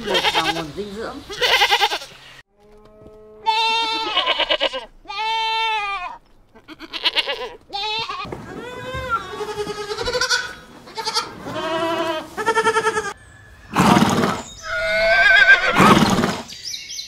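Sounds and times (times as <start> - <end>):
goats bleating: 0.0 - 2.2, 3.4 - 13.2.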